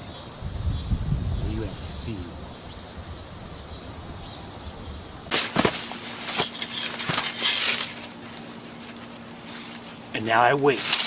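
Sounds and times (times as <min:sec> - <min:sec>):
crunching and rustling: 0:05.3 - 0:11.0.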